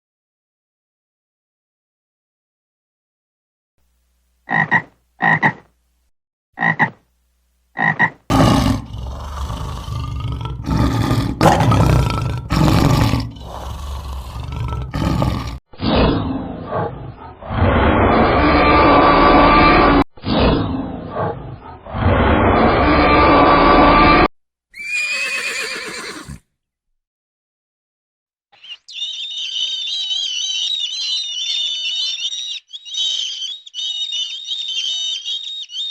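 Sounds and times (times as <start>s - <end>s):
frog croaks: 4.5s - 5.7s, 6.6s - 7.0s, 7.8s - 11.6s
large animal roaring: 8.3s - 20.0s
small birds chirping: 28.5s - 35.9s.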